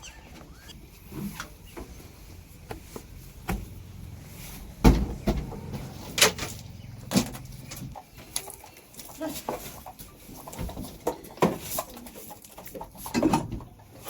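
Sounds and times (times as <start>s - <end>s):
engine humming: 0.0s - 8.8s
sharp knocks and clanks: 4.8s - 8.0s.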